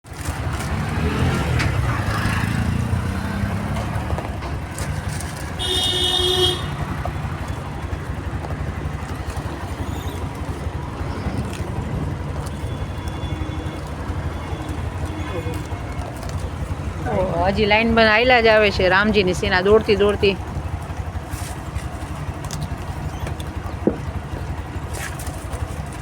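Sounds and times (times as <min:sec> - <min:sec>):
road noise: 0:00.0 - 0:26.0
vehicle engine running: 0:00.0 - 0:26.0
vehicle horn: 0:05.5 - 0:07.6, 0:12.6 - 0:16.4.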